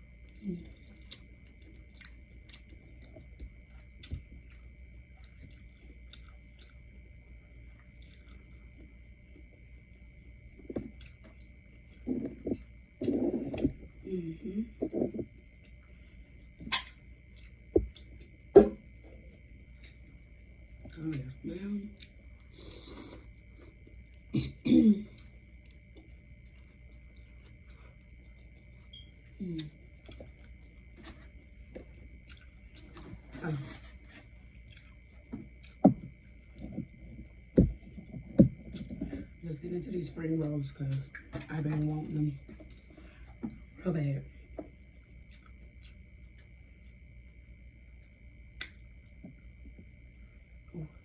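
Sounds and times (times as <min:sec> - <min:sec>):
faint high whine: 0:00.0 - 0:51.0
person chewing food: 0:00.3 - 0:14.0, 0:14.7 - 0:21.1, 0:22.0 - 0:24.3, 0:25.1 - 0:39.3, 0:42.5 - 0:43.7, 0:44.6 - 0:50.2
woman clearing her throat: 0:24.4 - 0:25.1.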